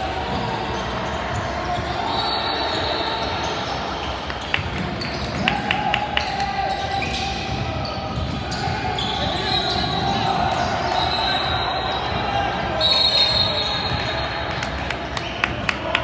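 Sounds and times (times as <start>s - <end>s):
basketball bouncing on court: 4.3s - 10.7s.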